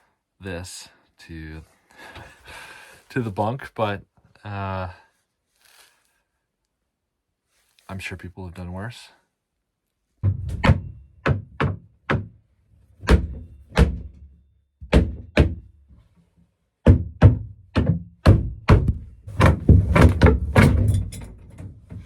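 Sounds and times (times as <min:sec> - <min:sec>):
heavy blows on plywood: 0:10.2 - 0:12.4, 0:13.0 - 0:15.7, 0:16.8 - 0:20.8.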